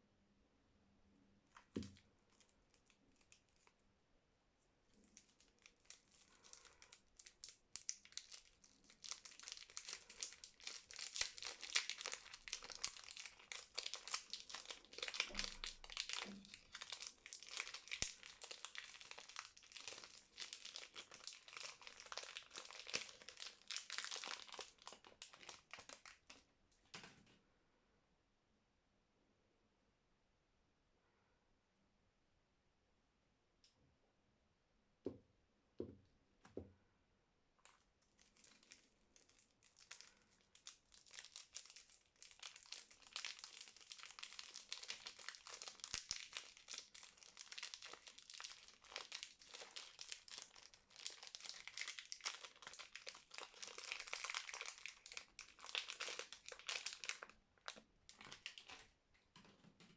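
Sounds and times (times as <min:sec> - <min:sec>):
wrapper crinkling and tearing: 0:01.8 - 0:03.8, 0:04.9 - 0:26.5, 0:37.6 - 0:59.0.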